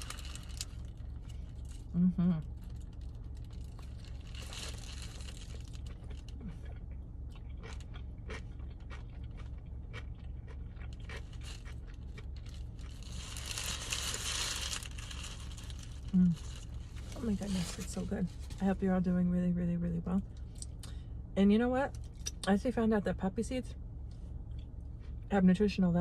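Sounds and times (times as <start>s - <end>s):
biting and chewing food: 0.0s - 18.6s
steady low hum: 0.0s - 26.0s
paper wrapper rustling: 12.8s - 18.6s.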